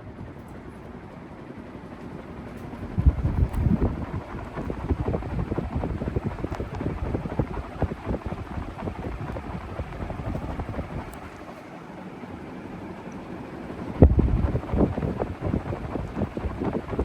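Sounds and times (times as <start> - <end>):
ceiling fan running: 0.0 - 17.0
air buffeting microphone: 2.1 - 11.6, 13.7 - 17.0.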